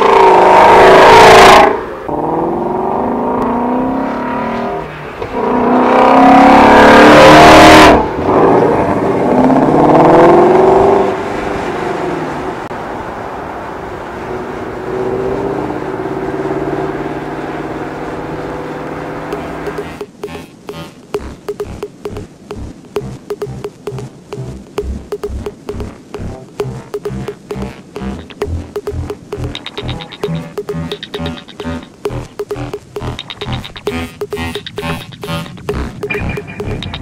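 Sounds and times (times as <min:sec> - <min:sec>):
car engine accelerating hard: 0:00.0 - 0:19.7.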